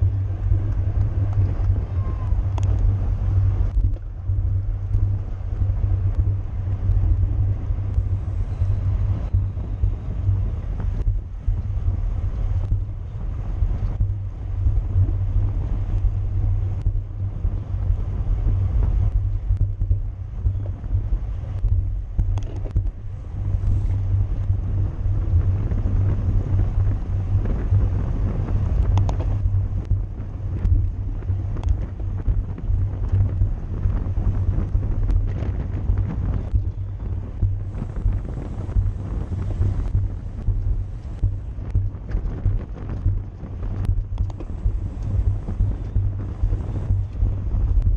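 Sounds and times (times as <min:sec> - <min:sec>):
wind buffeting microphone: 0:00.0 - 0:47.9
faint clicks: 0:00.7 - 0:02.9, 0:21.5 - 0:24.0, 0:28.8 - 0:30.0, 0:31.5 - 0:32.0, 0:37.4 - 0:47.9.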